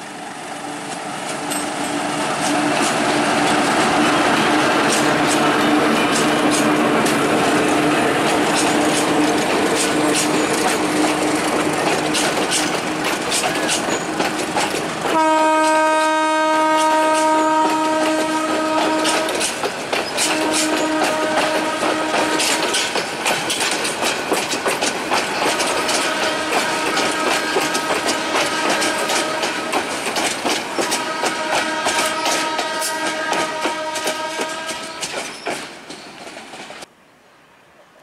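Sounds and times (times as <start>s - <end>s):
train wheels clattering over rails: 0.0s - 36.9s
train horn: 15.0s - 19.5s, 20.2s - 22.9s, 25.7s - 29.9s, 30.6s - 35.2s.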